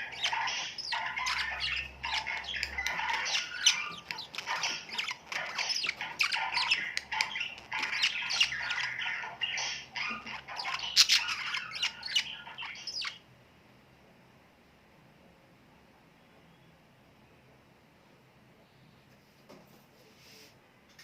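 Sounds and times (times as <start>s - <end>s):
birds chattering: 0.0s - 13.3s.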